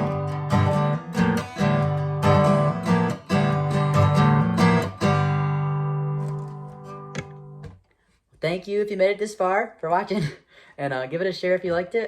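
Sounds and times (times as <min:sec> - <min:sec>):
acoustic guitar strumming: 0:00.0 - 0:07.8.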